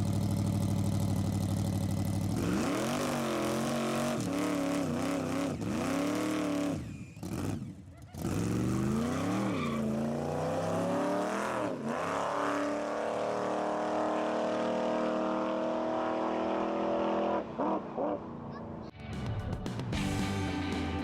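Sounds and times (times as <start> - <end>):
car engine revving hard: 2.4 - 18.2.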